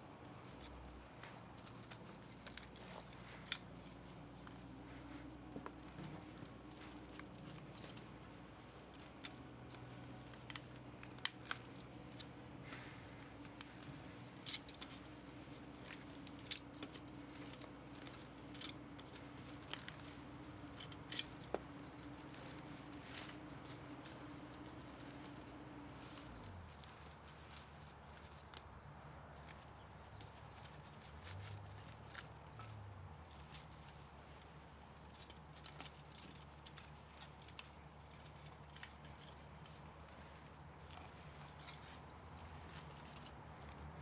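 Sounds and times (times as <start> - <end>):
hand tools clicking and snipping metal: 0.0 - 28.7, 29.3 - 44.0
steady low hum: 0.0 - 44.0.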